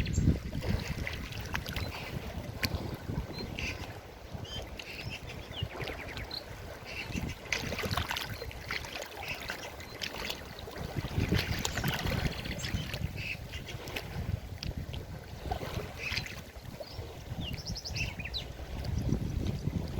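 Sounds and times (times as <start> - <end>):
river water splashing and gurgling: 0.0 - 19.9.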